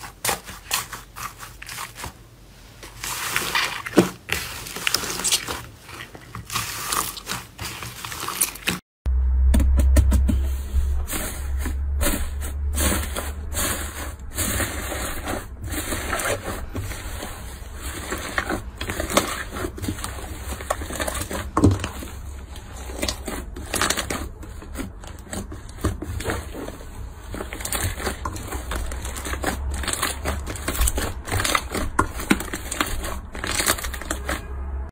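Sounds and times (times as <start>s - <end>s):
slime crackling and popping: 15.7s - 34.4s.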